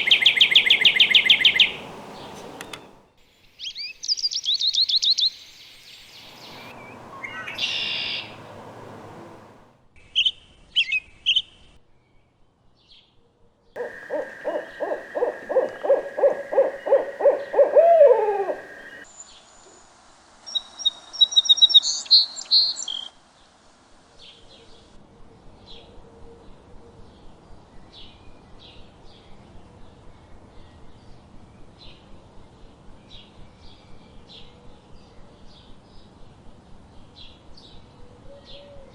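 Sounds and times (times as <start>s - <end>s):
owl hooting: 0.0s - 3.0s, 6.3s - 9.6s, 13.8s - 19.0s
songbird chirps: 0.0s - 9.7s, 13.8s - 19.3s.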